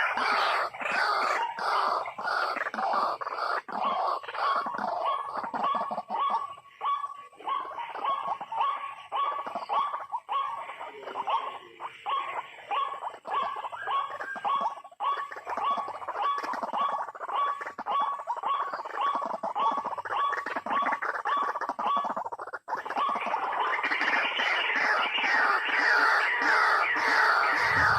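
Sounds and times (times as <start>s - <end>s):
waterhen harsh call: 0.0s - 7.3s, 15.6s - 27.9s.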